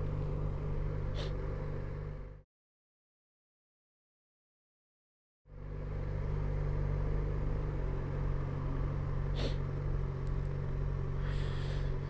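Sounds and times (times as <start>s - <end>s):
motorcycle engine running: 0.0s - 2.4s, 5.5s - 12.0s
road and wind noise: 0.0s - 2.4s, 5.5s - 12.0s.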